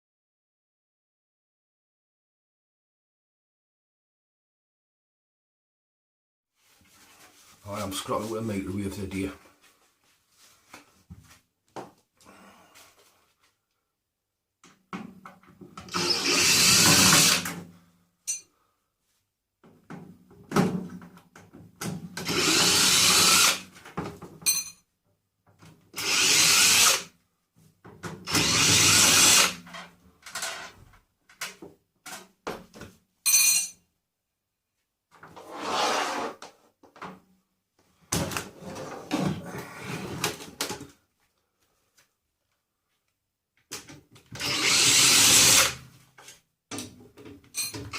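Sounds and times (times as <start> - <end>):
power drill running in bursts: 15.9 - 17.5, 22.2 - 23.6, 26.0 - 27.0, 28.3 - 29.6, 44.4 - 45.8.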